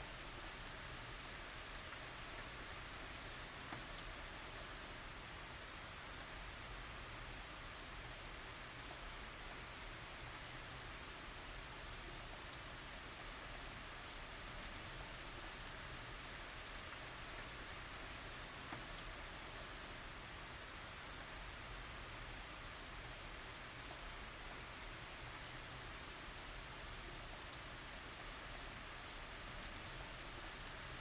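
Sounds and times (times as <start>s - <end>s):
steady rain hissing: 0.0s - 31.0s
raindrops ticking: 10.2s - 20.0s, 21.0s - 31.0s.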